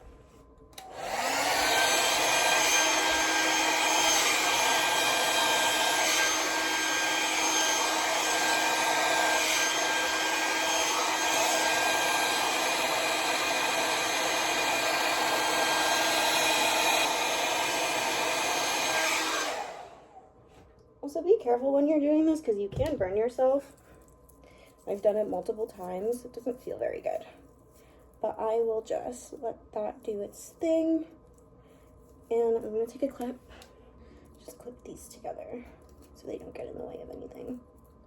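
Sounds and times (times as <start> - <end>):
hair dryer whirring: 0.7 - 20.4.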